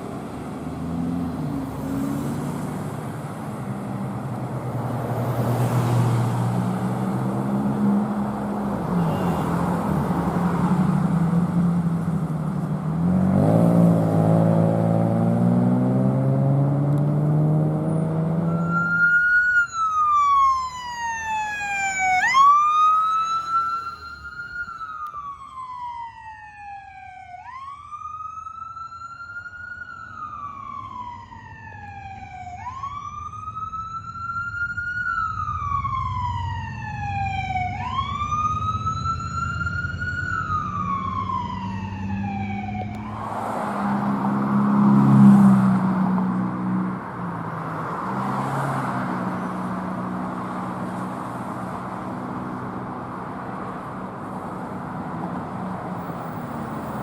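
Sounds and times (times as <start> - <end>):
loud vehicle noise: 0.0 - 26.1, 30.0 - 57.0
electronic siren wailing: 18.4 - 26.0, 26.6 - 43.2.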